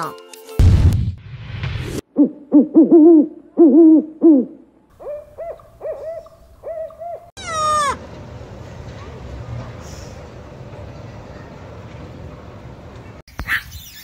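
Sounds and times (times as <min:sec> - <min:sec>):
owl hooting: 0:02.2 - 0:08.0.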